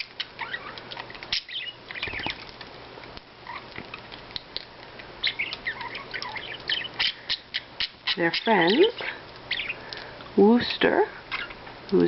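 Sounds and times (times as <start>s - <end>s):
budgerigars chirping: 0.0s - 2.4s, 5.2s - 9.8s, 11.3s - 11.6s.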